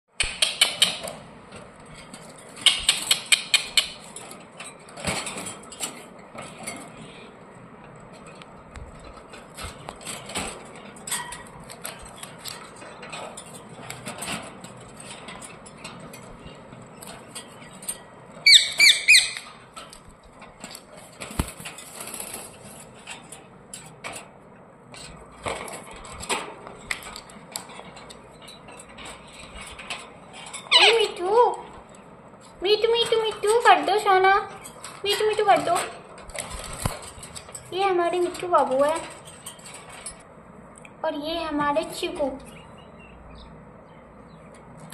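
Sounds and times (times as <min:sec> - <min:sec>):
parrot clicking and fluttering: 0:00.2 - 0:07.1, 0:08.0 - 0:24.3, 0:34.5 - 0:40.2
taps and rustles: 0:07.9 - 0:18.5, 0:19.4 - 0:24.3, 0:24.9 - 0:30.6, 0:34.5 - 0:40.2
parrots squawking: 0:18.4 - 0:19.5, 0:30.6 - 0:31.2.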